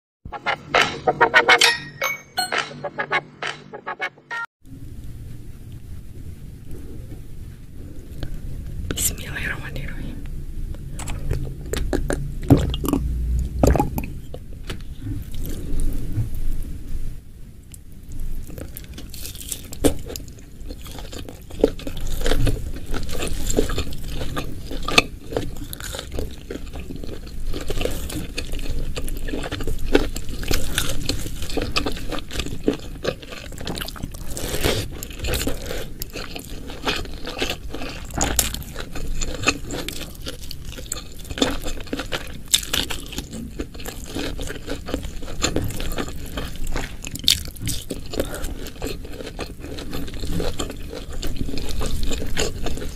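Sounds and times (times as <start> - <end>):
chewing and crunching: 11.0 - 13.1, 13.7 - 16.6, 18.1 - 52.9.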